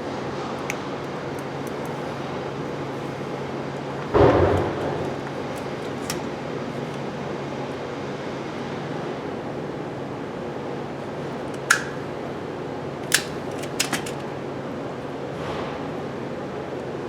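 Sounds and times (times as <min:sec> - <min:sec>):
sudden loud clunk: 0:04.2 - 0:05.3.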